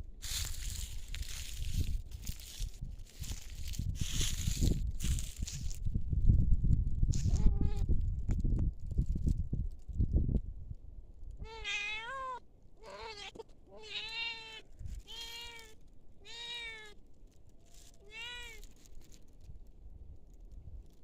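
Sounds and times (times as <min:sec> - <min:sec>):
cat meowing: 0:07.3 - 0:07.8, 0:11.4 - 0:17.0, 0:17.8 - 0:18.7.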